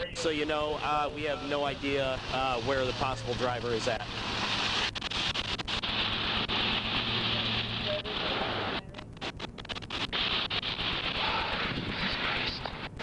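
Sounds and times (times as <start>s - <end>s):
low steady hum: 0.0s - 13.0s
fuel fire hissing: 0.2s - 13.0s
wind on microphone: 11.0s - 13.0s.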